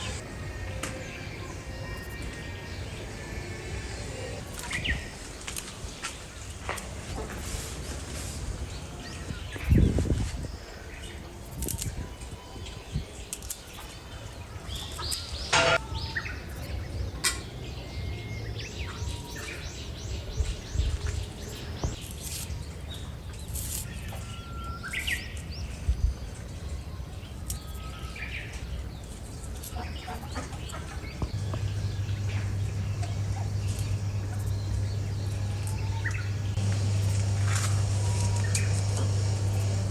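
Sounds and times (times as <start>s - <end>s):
birds chirping and calling: 0.8s - 39.9s.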